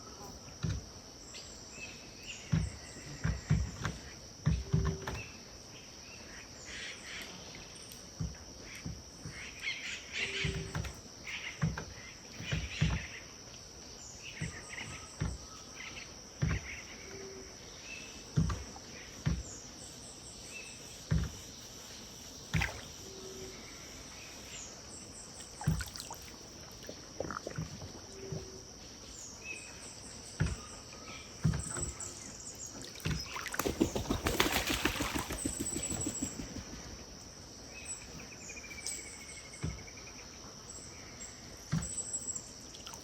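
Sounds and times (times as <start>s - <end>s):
insect drone: 0.0s - 43.0s
river water lapping at bank: 22.5s - 23.1s, 25.3s - 28.7s, 32.2s - 36.4s, 42.7s - 43.0s
bird chirps: 22.6s - 36.7s.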